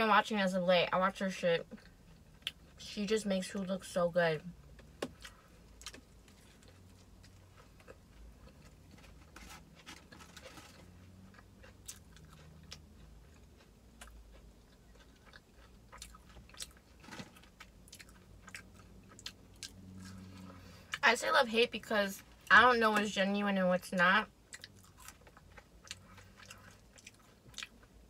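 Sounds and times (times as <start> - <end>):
soft chewing: 1.6 - 2.9, 4.7 - 21.0, 24.5 - 28.0
crispy food crunching: 5.0 - 21.0, 24.5 - 28.0.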